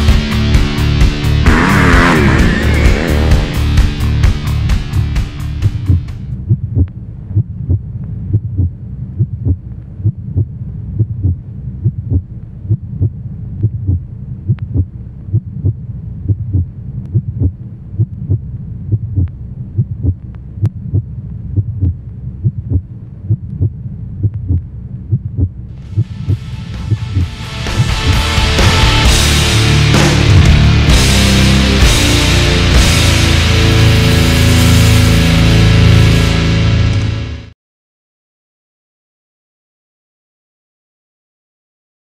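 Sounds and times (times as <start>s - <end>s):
heavy rock music: 0.0s - 6.3s, 25.8s - 37.5s
low thudding beat: 0.0s - 37.3s.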